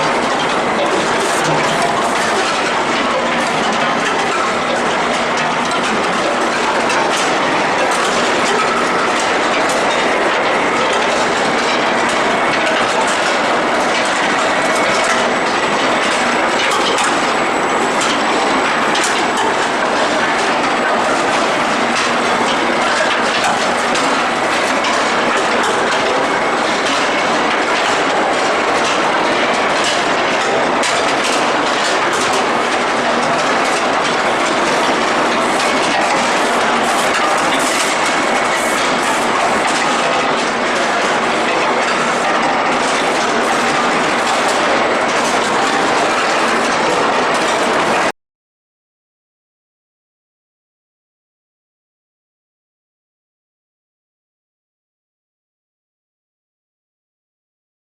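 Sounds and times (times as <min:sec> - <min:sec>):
machinery metallic clatter: 0:00.0 - 0:48.1.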